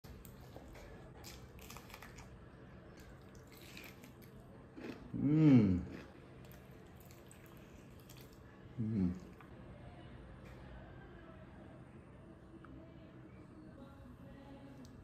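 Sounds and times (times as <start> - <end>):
person chewing and crunching: 0.0 - 8.4
hummed mmm: 4.8 - 6.1, 8.7 - 9.5.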